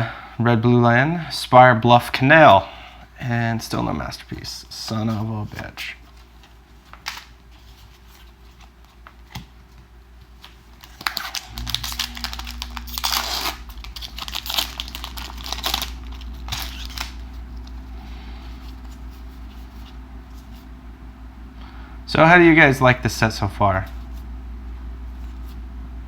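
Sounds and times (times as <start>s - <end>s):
steady low hum: 0.0s - 26.0s
foil wrapper tearing and crinkling: 10.4s - 17.4s.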